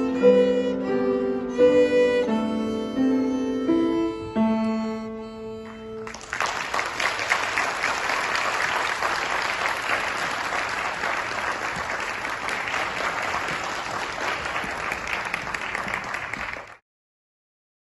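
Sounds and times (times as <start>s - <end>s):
audience applauding: 6.0s - 16.8s.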